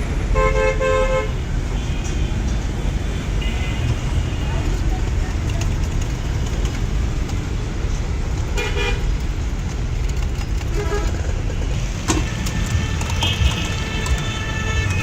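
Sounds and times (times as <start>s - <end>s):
street traffic rumble: 0.0s - 15.0s
vehicle horn toot: 12.1s - 15.0s.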